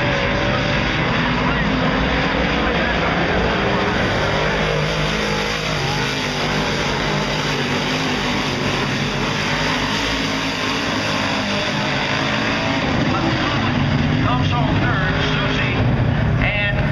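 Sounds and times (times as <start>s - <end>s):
race car engines running: 0.0s - 16.9s.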